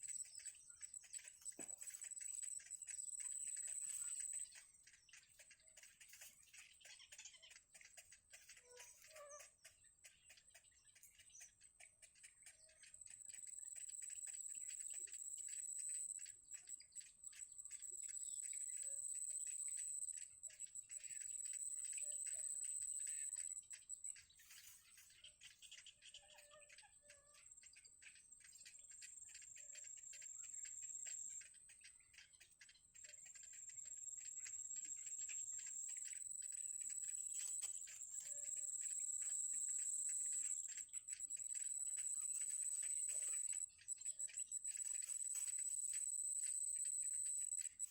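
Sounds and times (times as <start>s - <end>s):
faint bird chirps: 0.0s - 47.9s
fast continuous ticking: 26.8s - 47.9s
steady high-pitched whine: 33.1s - 47.9s.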